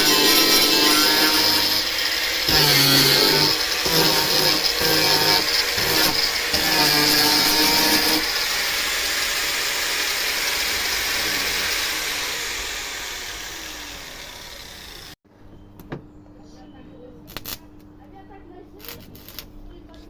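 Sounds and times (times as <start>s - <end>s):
power tool running: 0.0s - 15.2s.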